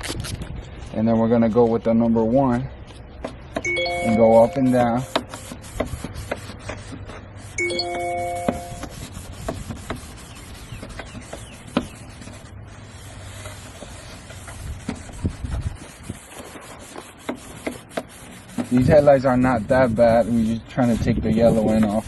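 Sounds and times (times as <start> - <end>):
electronic chime: 3.7 - 5.3, 7.6 - 8.8
sandpaper rasping on plastic: 4.1 - 7.7, 8.4 - 22.0.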